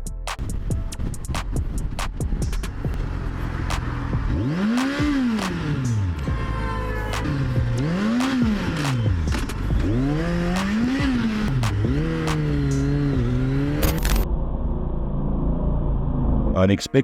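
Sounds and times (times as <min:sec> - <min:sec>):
motorcycle engine revving: 0:01.4 - 0:16.5.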